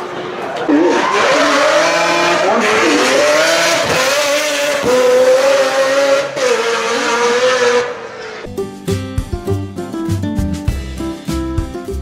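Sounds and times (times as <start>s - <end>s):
car engine revving hard: 0.7s - 8.4s
guitar music: 8.5s - 12.0s.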